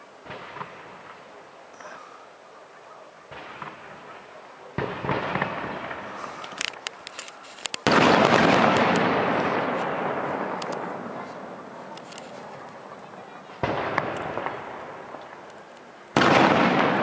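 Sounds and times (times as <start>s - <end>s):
firework crackles: 0.0s - 2.4s, 3.3s - 17.0s
firework shells bursting: 4.8s - 12.9s, 13.6s - 17.0s.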